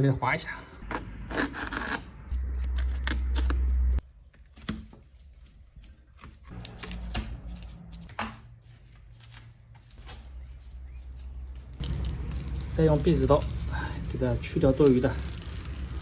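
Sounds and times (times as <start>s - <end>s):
low hum: 6.4s - 14.2s.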